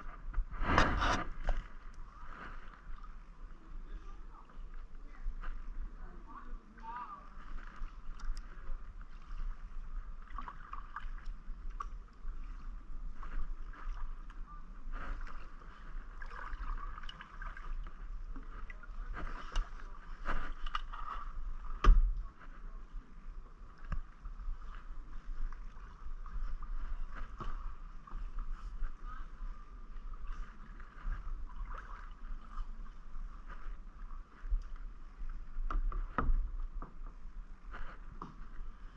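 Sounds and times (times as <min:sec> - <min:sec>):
paddle splashing water: 0:00.0 - 0:38.9
kayak knocks: 0:21.7 - 0:22.2, 0:35.6 - 0:37.1.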